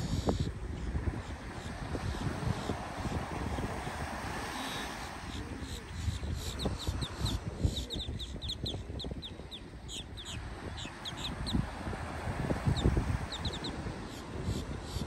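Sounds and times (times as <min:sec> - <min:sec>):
wind buffeting microphone: 0:00.0 - 0:15.0
birds chirping: 0:04.5 - 0:11.8, 0:12.5 - 0:15.0.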